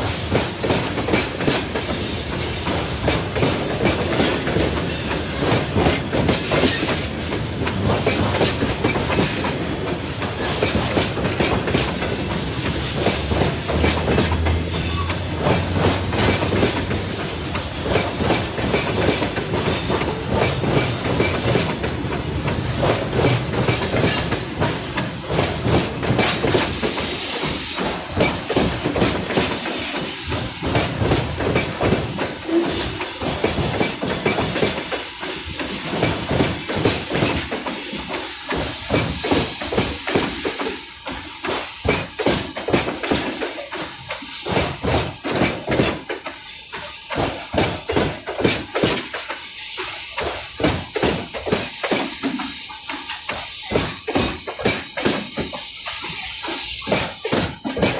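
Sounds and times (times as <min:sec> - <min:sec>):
freight train wagons rolling: 0:00.0 - 0:57.9
wheels clacking over rail joints: 0:00.0 - 0:57.9.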